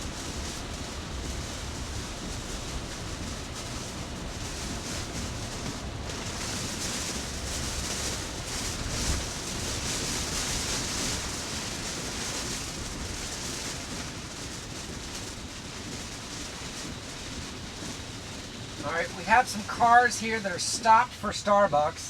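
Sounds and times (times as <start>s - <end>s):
heavy rain on car: 0.0s - 22.0s
tyres hissing through water: 17.0s - 22.0s.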